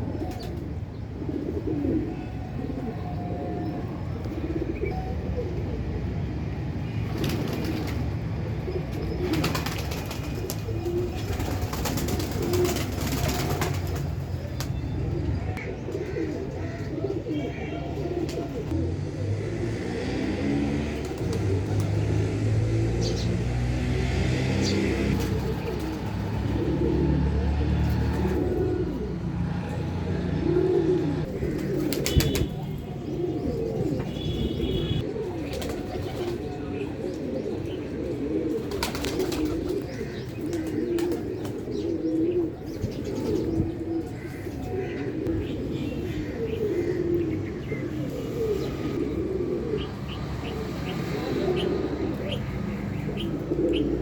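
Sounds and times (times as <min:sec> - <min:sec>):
pigeons cooing: 0:00.0 - 0:54.0
small birds chirping: 0:38.6 - 0:54.0.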